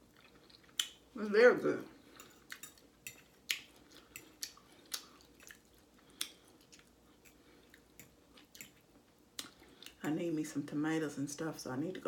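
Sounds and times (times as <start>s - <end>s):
close chewing with wet mouth clicks: 0.1s - 1.0s, 2.1s - 10.0s.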